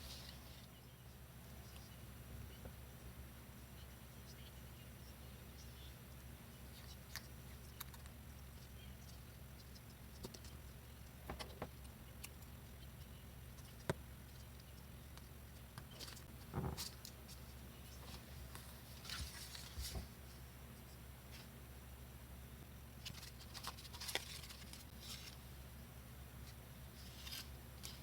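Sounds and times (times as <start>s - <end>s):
paper rustling: 15.9s - 20.2s, 23.0s - 25.4s, 27.0s - 28.0s.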